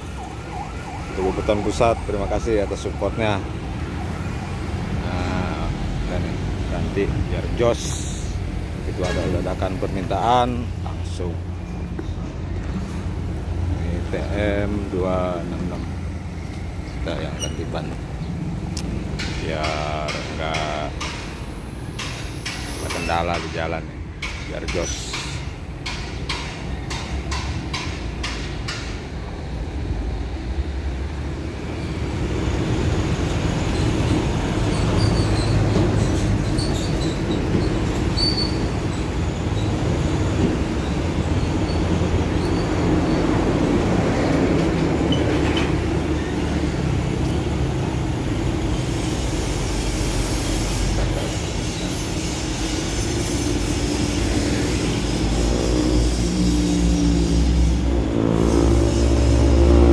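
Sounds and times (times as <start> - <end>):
diesel engine rumble: 0.0 - 59.9
short high squeaks: 17.3 - 17.8, 33.7 - 39.8, 40.8 - 43.4.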